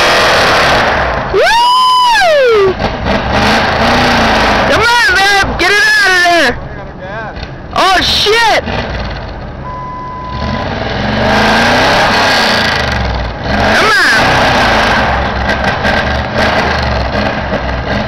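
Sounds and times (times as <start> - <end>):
truck engine revving hard: 0.0 - 5.8, 8.4 - 9.5, 10.1 - 18.0.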